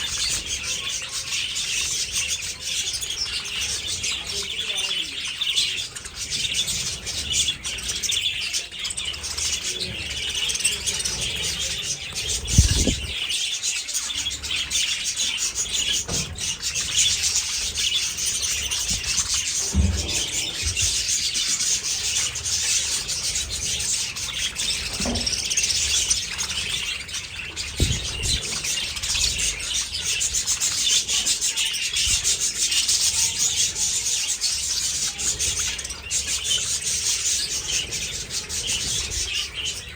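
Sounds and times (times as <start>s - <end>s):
budgerigars chattering and chirping: 0.0s - 39.9s
dull low thumps: 12.4s - 13.2s.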